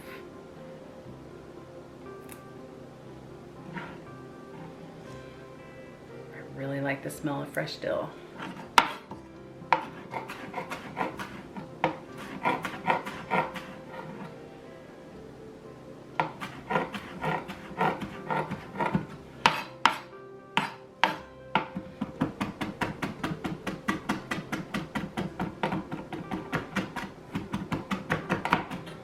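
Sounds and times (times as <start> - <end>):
knife chopping on a board: 8.4 - 14.0, 16.2 - 29.0.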